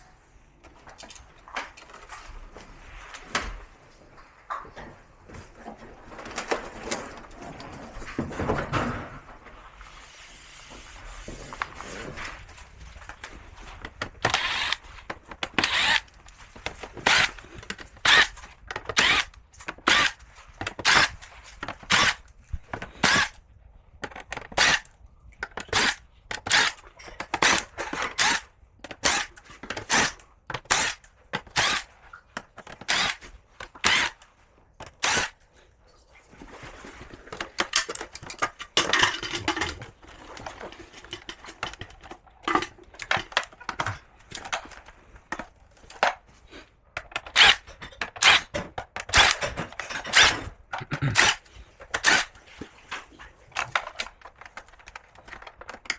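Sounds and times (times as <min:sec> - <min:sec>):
tool working in short bursts: 0:14.2 - 0:14.8, 0:15.4 - 0:22.3, 0:22.9 - 0:23.4, 0:24.5 - 0:24.9, 0:25.6 - 0:31.9, 0:32.8 - 0:34.3, 0:34.9 - 0:35.4, 0:47.2 - 0:52.4.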